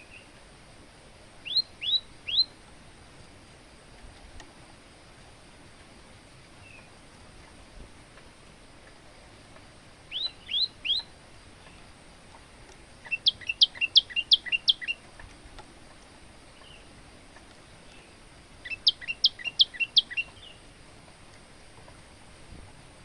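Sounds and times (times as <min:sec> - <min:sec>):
bird singing sharp notes: 0:01.4 - 0:02.5, 0:10.1 - 0:11.1, 0:13.0 - 0:15.0, 0:18.6 - 0:20.6.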